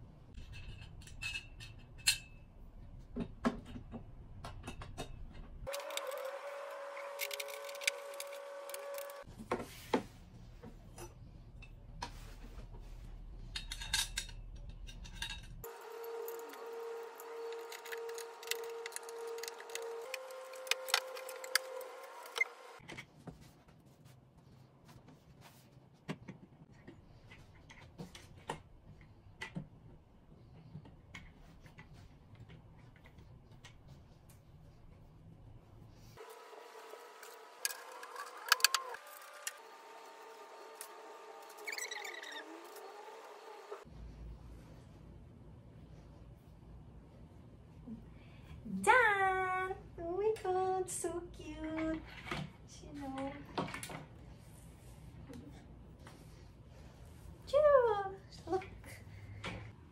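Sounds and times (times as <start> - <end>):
metal parts clicking and knocking: 13.5 - 16.6.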